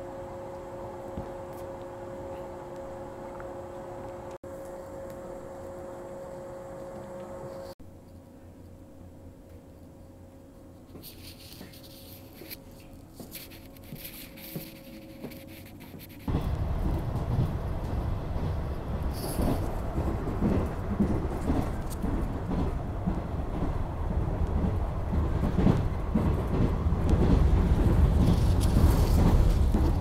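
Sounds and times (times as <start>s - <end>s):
faint cabin hum: 0.0s - 13.8s
train rumbling along track: 13.2s - 30.0s.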